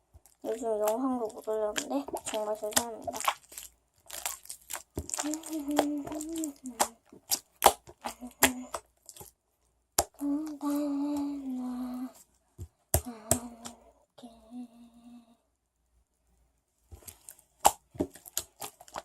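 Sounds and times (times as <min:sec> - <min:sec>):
person humming: 0:05.2 - 0:07.0, 0:10.2 - 0:12.2, 0:13.0 - 0:15.4.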